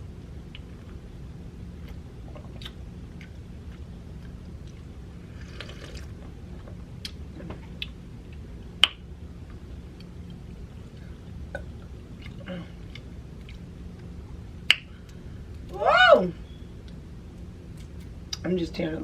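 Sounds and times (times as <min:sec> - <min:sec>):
steady low hum: 0:00.0 - 0:19.0
person chewing food: 0:01.7 - 0:08.5, 0:09.4 - 0:14.2.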